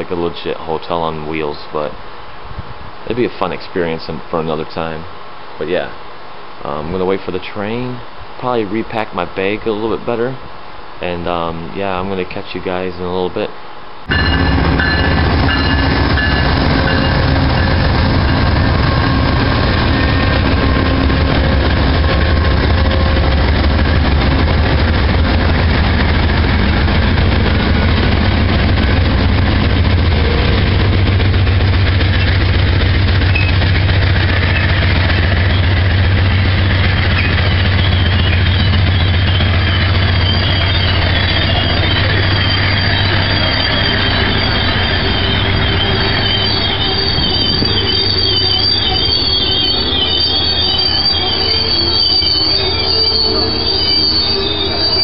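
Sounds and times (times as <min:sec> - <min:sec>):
train wheels and engine rumbling: 0:14.0 - 0:55.0
high-pitched wheel squeal: 0:14.1 - 0:29.0, 0:29.6 - 0:55.0.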